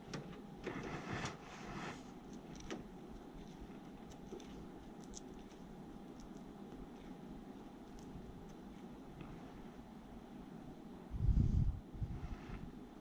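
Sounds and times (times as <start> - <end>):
faint hum: 0.0 - 13.0
rustling handling noise: 0.7 - 9.9.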